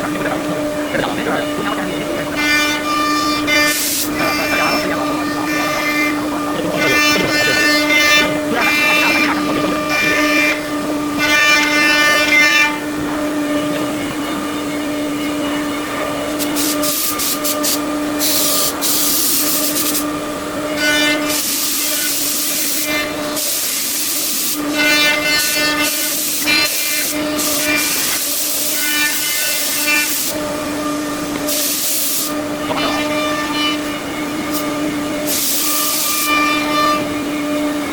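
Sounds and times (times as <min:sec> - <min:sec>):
loud hiss bursts: 0:00.0 - 0:15.1, 0:16.1 - 0:37.9
machine spindle whine: 0:00.0 - 0:37.9.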